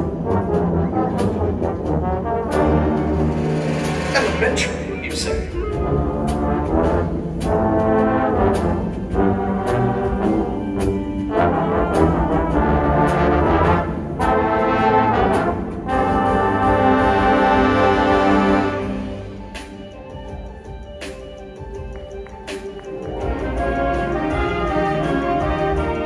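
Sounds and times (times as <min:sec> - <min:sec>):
wind band playing brass music: 0:00.0 - 0:26.0
percussion strikes: 0:02.6 - 0:10.9.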